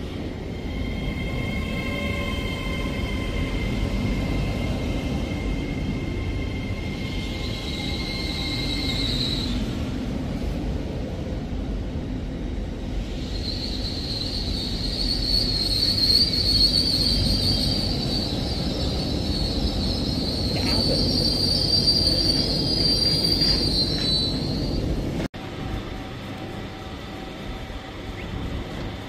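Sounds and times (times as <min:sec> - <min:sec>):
train rolling with low rumble: 0:00.0 - 0:29.0
high-pitched running gear squeal: 0:13.3 - 0:24.9.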